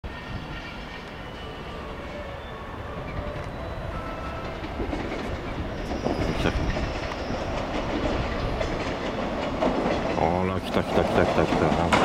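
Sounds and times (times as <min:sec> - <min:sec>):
train wheels clacking over rail joints: 0:04.3 - 0:12.0.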